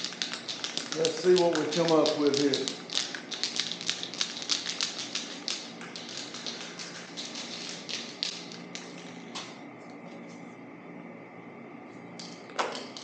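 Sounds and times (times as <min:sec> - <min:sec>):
spray can hissing clicks: 0:00.0 - 0:06.6.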